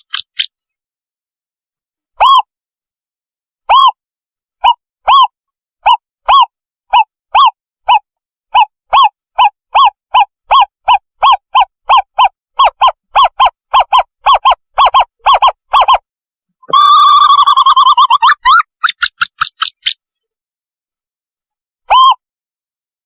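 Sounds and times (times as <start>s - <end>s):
wavering trilling call: 0.0s - 0.6s, 2.2s - 2.5s, 4.6s - 8.0s, 8.6s - 16.0s, 16.6s - 20.2s
recorded owlet hoots: 8.6s - 16.0s.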